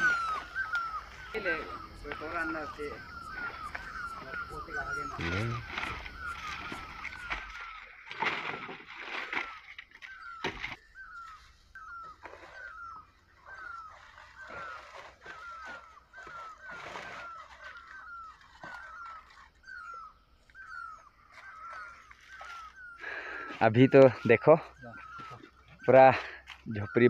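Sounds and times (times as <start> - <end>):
bird repeating short call: 0.0 - 7.8
large leaves rustling: 0.0 - 26.7.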